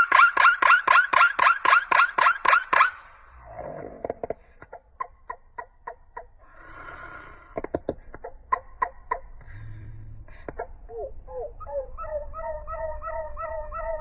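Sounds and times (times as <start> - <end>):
bird clicking calls: 0.0 - 3.0.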